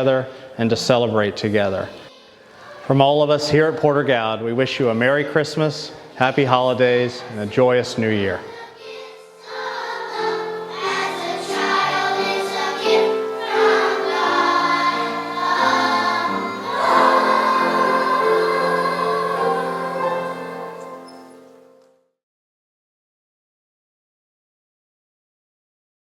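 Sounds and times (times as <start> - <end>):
choir singing sustained chords: 0.5 - 3.7, 6.0 - 21.8.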